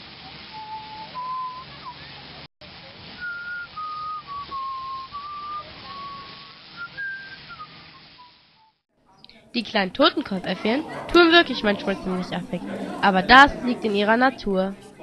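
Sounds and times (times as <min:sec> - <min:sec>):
person whistling a slow tune: 0:00.5 - 0:02.0, 0:03.2 - 0:08.3.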